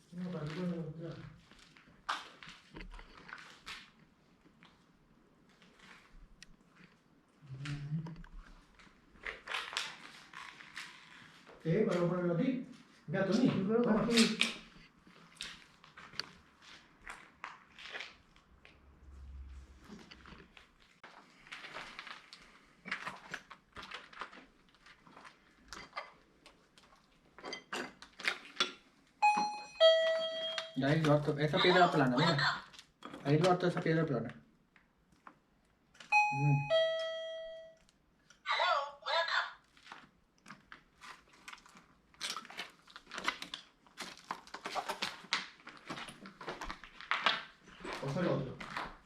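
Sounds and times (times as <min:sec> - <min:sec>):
debris crunching and crackling: 0:20.0 - 0:25.9.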